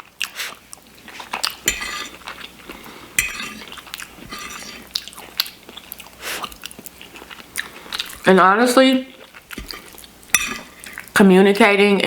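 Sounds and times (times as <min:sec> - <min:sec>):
metal utensil scraping a dish: 0:01.7 - 0:02.3, 0:03.2 - 0:04.9.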